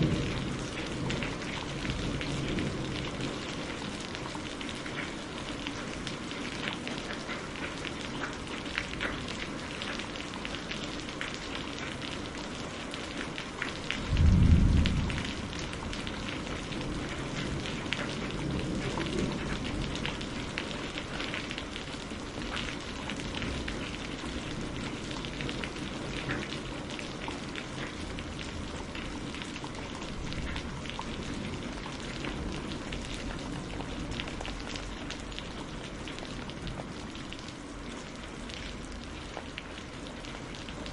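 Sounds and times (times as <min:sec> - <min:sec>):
rain falling: 0:00.0 - 0:40.9
loud low rumble: 0:14.1 - 0:15.5.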